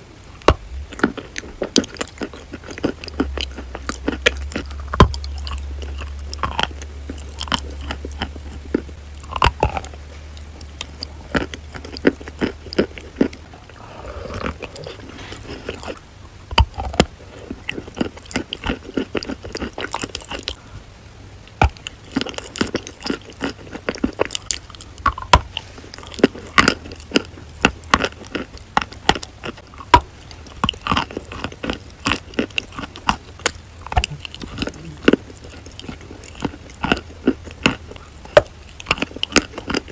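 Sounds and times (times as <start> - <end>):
soft chewing: 0.0 - 39.9
chalk crunching: 13.8 - 16.0.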